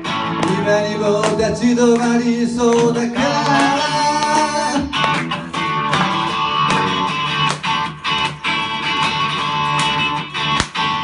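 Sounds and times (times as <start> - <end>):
strummed guitar: 0.0 - 11.0
person singing: 0.3 - 7.0.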